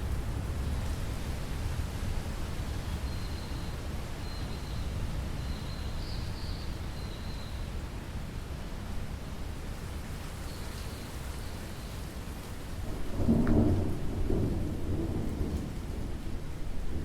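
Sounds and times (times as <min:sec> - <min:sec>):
steady rainfall: 0:00.0 - 0:17.0
thunder rumbling: 0:12.8 - 0:17.0.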